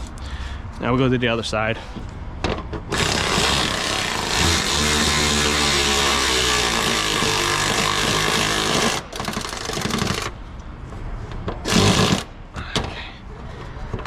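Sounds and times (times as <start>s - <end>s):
power tool motor running: 2.9s - 10.3s, 11.6s - 12.3s.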